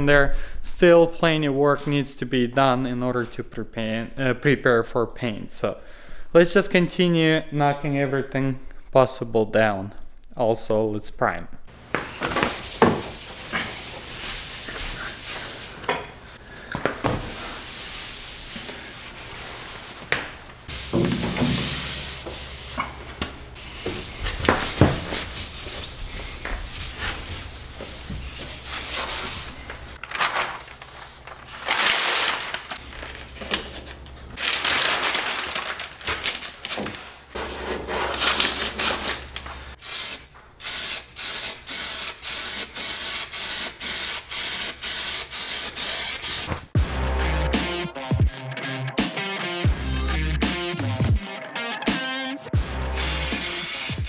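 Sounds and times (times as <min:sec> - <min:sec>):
sanding on truck body panels: 0:11.7 - 0:16.3, 0:17.1 - 0:30.0, 0:40.8 - 0:46.7, 0:53.0 - 0:54.0.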